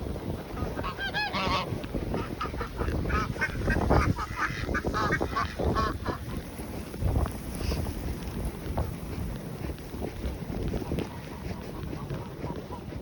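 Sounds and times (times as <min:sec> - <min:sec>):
ducks quacking: 0:00.3 - 0:06.6.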